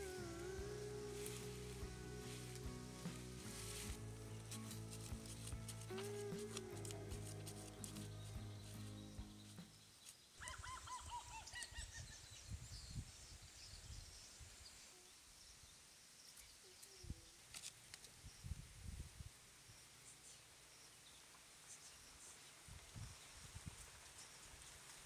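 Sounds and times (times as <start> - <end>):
background music: 0.0 - 9.8.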